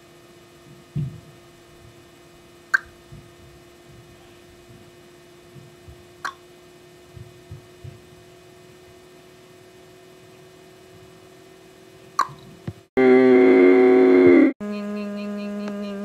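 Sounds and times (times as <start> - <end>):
steady background hum: 0.0 - 16.0
soft low thumps: 0.6 - 2.0, 2.8 - 4.9, 7.1 - 8.2
sharp click: 2.7 - 3.0.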